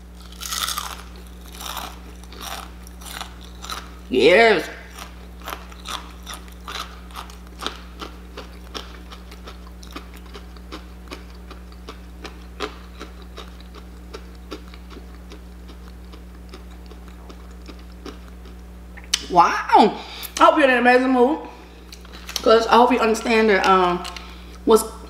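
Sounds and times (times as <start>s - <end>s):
person chewing crunchy food: 0.0s - 19.2s, 21.8s - 22.5s
steady low hum: 0.0s - 25.0s.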